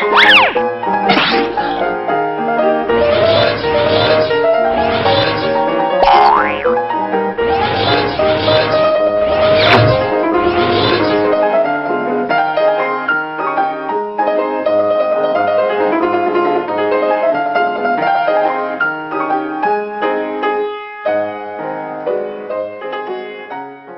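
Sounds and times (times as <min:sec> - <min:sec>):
piano music: 0:00.0 - 0:03.4, 0:05.5 - 0:07.4.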